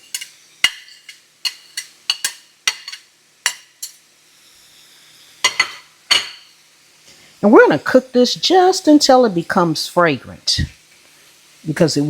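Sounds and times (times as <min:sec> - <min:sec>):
metal utensil clinking on pan: 0:00.0 - 0:04.0, 0:05.4 - 0:06.6
pan sizzling faintly: 0:00.0 - 0:12.0.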